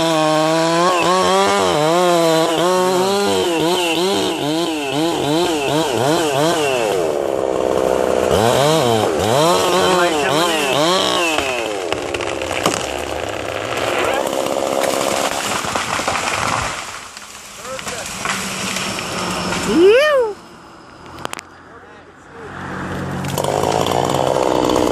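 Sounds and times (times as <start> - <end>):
small engine revving: 0.0 - 15.3, 22.4 - 24.9.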